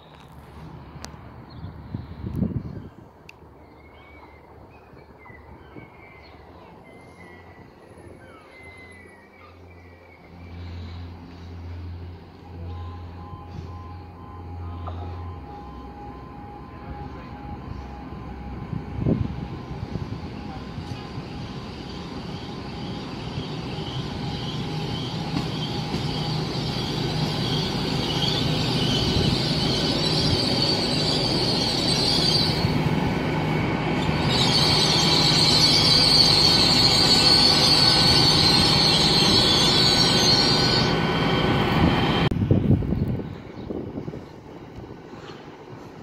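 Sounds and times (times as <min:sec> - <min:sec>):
train diesel engine hum: 0:00.2 - 0:46.0
brake and wheel squeal: 0:21.9 - 0:32.7, 0:34.0 - 0:41.5.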